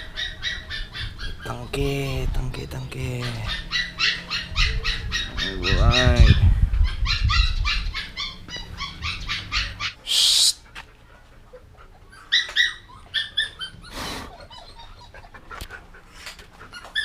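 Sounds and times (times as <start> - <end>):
dog whining and yelping: 0.0 - 1.5, 3.2 - 10.0, 11.5 - 17.0
person shushing: 10.0 - 10.7.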